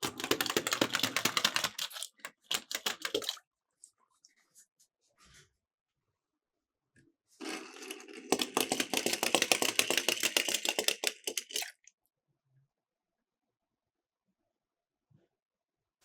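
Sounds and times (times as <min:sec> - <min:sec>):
toy cars rolling rattle: 0:07.4 - 0:11.8.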